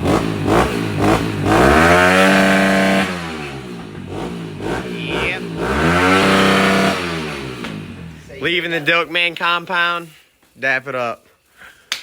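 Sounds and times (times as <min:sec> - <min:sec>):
dirt bike engine revving: 0:00.0 - 0:08.8.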